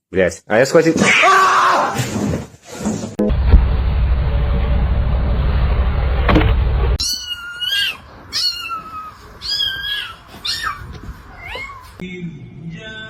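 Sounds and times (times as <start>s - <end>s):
loud low rumbling noise: 3.3s - 7.0s
kitten meowing: 7.0s - 12.0s.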